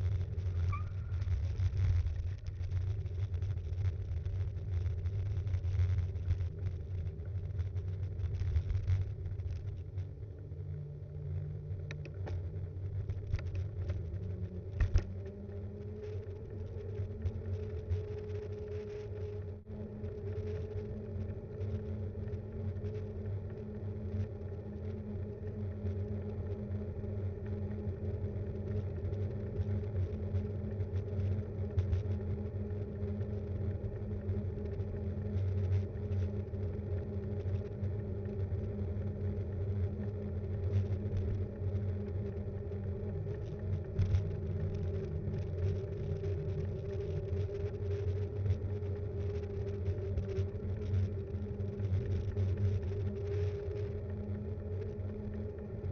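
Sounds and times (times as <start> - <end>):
bike rolling rumble: 0.0 - 55.9.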